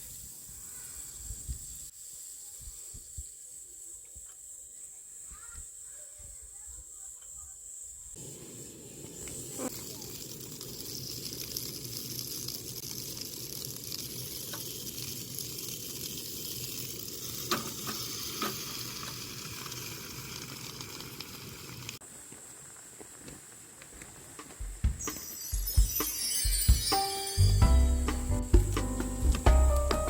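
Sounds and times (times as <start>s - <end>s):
food sizzling in a pan: 8.1s - 22.0s
sharp pops: 8.2s - 19.3s.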